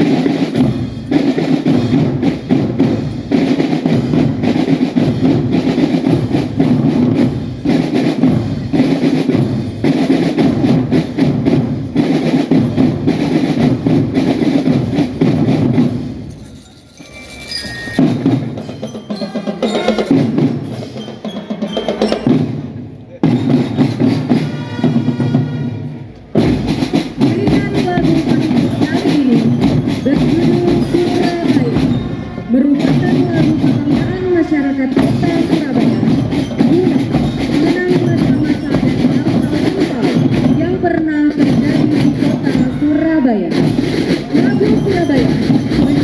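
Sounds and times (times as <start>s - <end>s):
marching drums: 0.0s - 46.0s
bell lyre notes: 16.3s - 21.0s.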